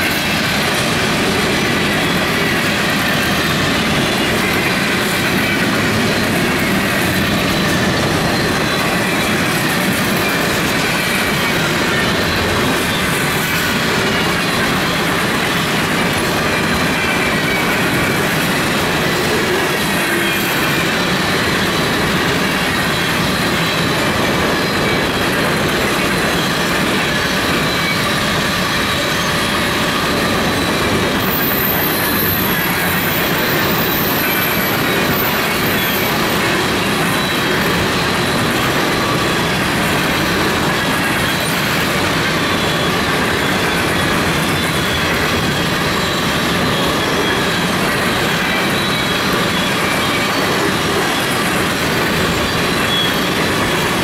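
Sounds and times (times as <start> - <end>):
steel wheels rolling on rail: 0.0 - 54.0
high wheel squealing: 0.1 - 54.0.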